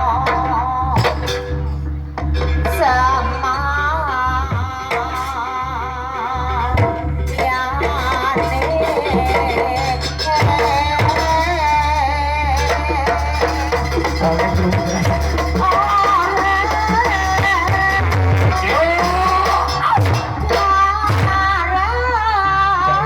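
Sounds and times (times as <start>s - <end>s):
hand drums beating: 0.0s - 21.7s.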